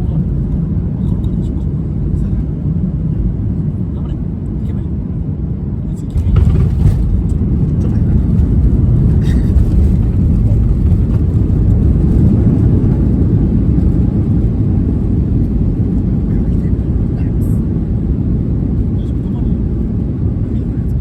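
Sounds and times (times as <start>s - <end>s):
jet engines in reverse thrust: 0.0s - 21.0s
wheels rolling on runway: 6.2s - 15.6s.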